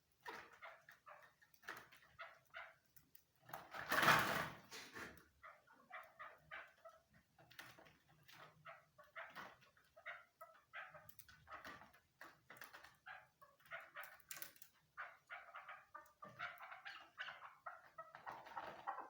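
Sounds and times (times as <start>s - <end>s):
partridge calling: 14.9s - 19.0s.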